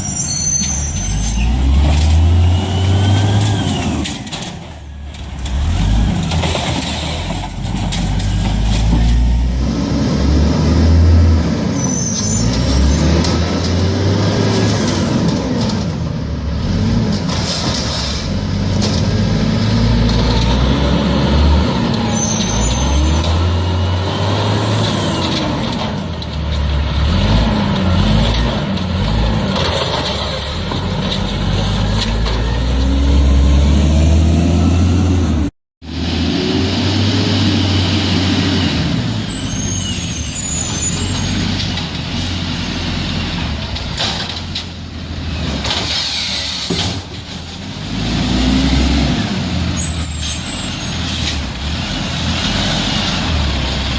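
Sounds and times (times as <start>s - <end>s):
brief high squeals: 0.0s - 1.6s, 11.7s - 13.0s, 22.1s - 23.2s, 39.3s - 41.5s
garbage truck engine revving: 0.9s - 53.9s.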